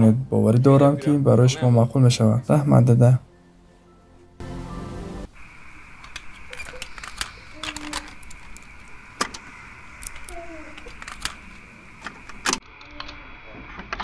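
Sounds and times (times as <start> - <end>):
steady high hiss: 0.0 - 14.0
sharp clicks and knocks: 6.0 - 12.6.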